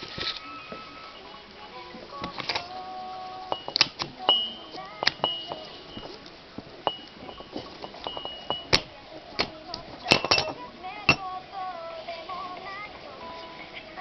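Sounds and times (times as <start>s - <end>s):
metal ringing tone: 3.5s - 6.2s, 6.8s - 8.9s, 10.1s - 11.2s
metal tools knocking and clinking: 3.5s - 6.2s, 6.8s - 11.2s.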